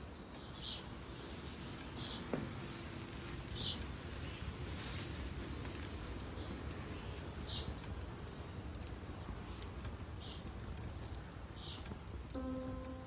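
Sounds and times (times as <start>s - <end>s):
wood fire crackling: 0.0s - 13.0s
birds chirping: 0.3s - 13.0s
low room tone rumble: 2.7s - 13.0s.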